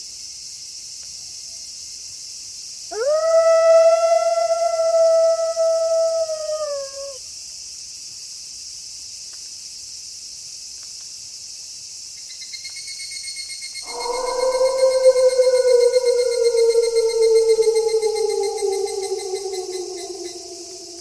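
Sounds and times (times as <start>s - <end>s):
pulsing cricket trill: 2.9s - 7.2s, 13.8s - 21.0s
wolf howling: 2.9s - 7.2s, 13.8s - 21.0s
night insects hissing: 2.9s - 8.0s, 13.8s - 21.0s.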